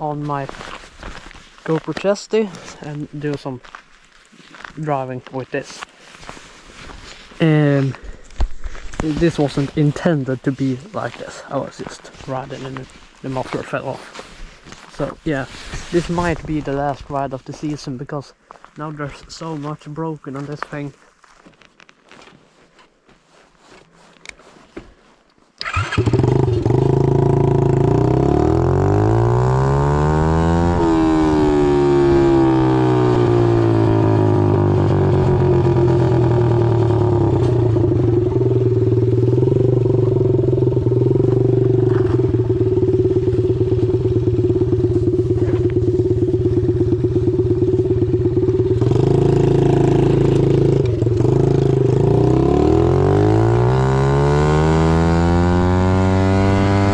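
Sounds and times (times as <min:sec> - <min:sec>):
motorbike engine revving: 0:25.6 - 0:56.9.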